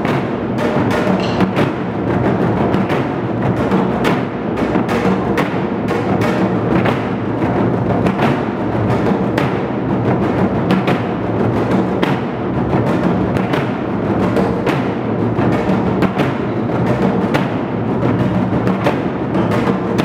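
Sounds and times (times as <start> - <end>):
barrel drums playing: 0.0 - 4.8.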